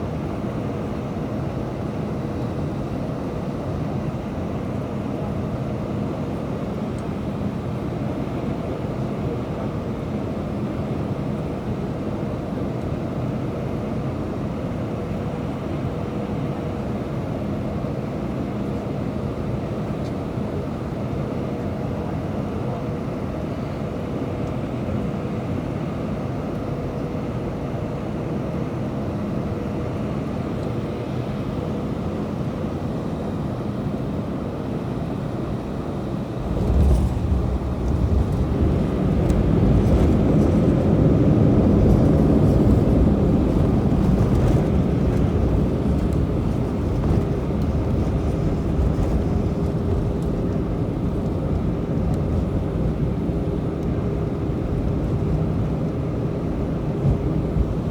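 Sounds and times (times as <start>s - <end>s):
aircraft engine hum: 0.0s - 57.9s
engine roar: 36.2s - 57.8s.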